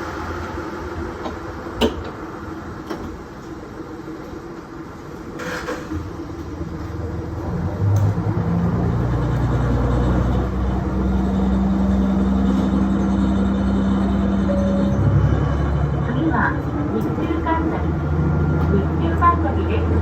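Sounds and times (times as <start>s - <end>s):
diesel railcar engine drone: 0.0s - 20.0s.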